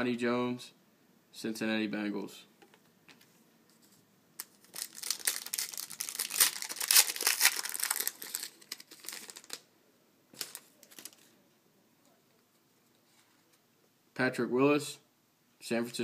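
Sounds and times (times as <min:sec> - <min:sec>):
wrapper being torn and crinkled: 0:04.4 - 0:09.6, 0:10.4 - 0:11.3.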